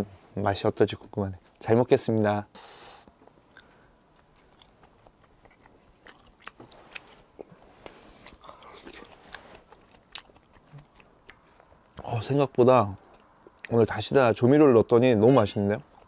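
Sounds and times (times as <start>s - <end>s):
mouth clicks and smacks: 3.1s - 12.2s, 12.9s - 13.9s.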